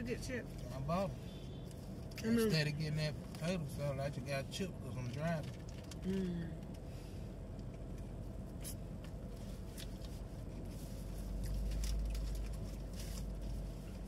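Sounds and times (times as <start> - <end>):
low car cabin hum: 0.0 - 14.0
food wrapping rustling and clicking: 5.0 - 6.0, 7.6 - 14.0
person chewing: 8.6 - 13.4.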